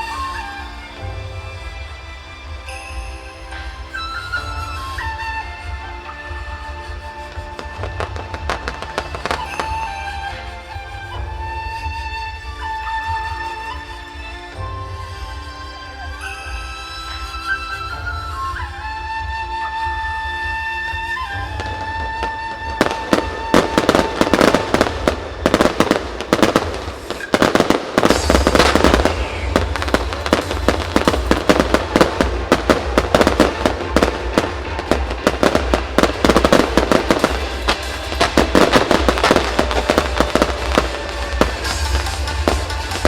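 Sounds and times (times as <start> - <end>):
fireworks bursts and crackles: 0.0 - 43.0.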